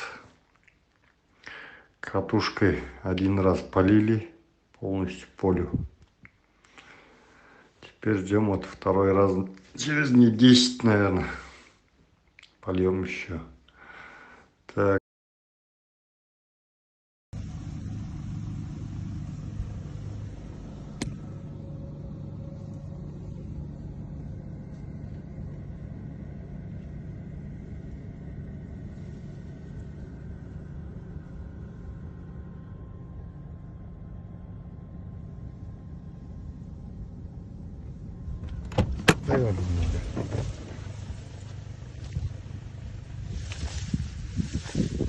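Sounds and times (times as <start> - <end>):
low vehicle rumble: 17.4 - 45.0.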